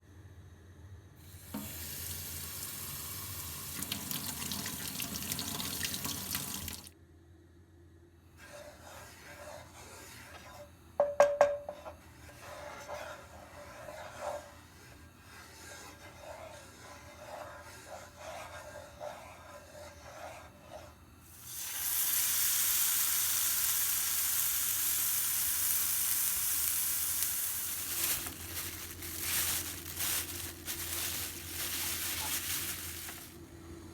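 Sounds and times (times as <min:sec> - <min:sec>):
tap water running into sink: 0:01.5 - 0:06.9.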